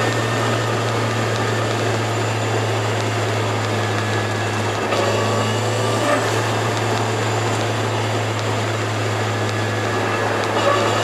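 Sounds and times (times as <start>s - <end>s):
car engine at steady revs: 0.0s - 11.0s
road noise: 0.0s - 11.0s.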